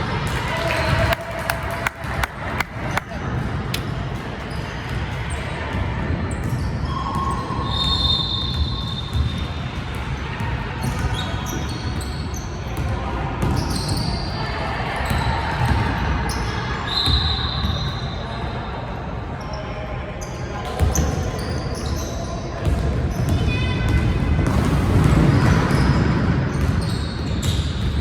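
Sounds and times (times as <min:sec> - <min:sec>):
crowd and hall noise: 0:00.0 - 0:28.0
basketball bouncing on gym floor: 0:04.9 - 0:10.2, 0:22.6 - 0:28.0
shoe squeaks: 0:26.6 - 0:27.9.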